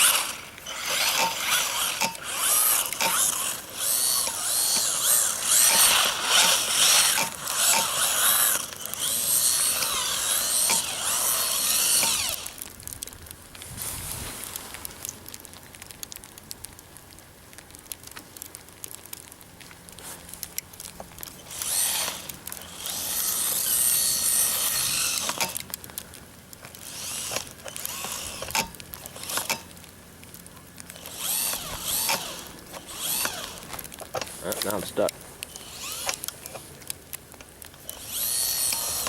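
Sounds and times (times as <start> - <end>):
electric motor whining: 0.0 - 12.7, 21.4 - 25.7, 26.8 - 29.7, 31.0 - 34.9, 35.5 - 36.6, 37.8 - 39.0.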